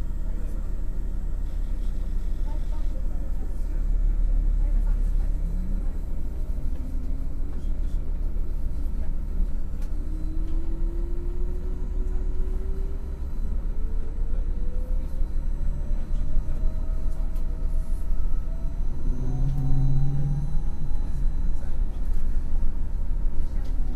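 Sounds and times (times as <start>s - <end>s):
bus engine rumble: 0.0s - 23.9s
rising thin whine: 17.1s - 23.5s.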